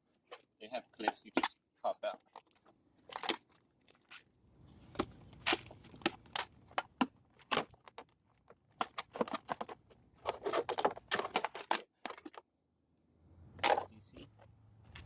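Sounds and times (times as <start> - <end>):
plastic scraping and creaking: 7.4 - 12.4.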